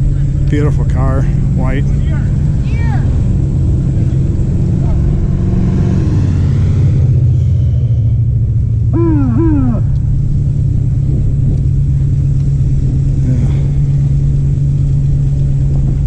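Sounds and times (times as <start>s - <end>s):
vehicle engine rumble: 0.0s - 16.0s
pitched calls: 8.9s - 10.1s.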